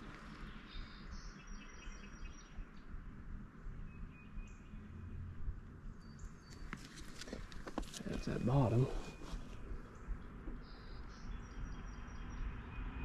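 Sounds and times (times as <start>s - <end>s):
small birds chirping: 0.0s - 2.9s, 5.9s - 13.0s.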